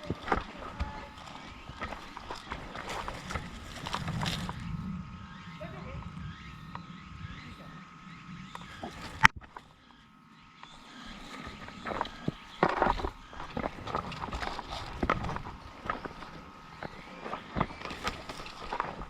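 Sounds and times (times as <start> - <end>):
footsteps rustling through leaves: 0.0 - 6.0.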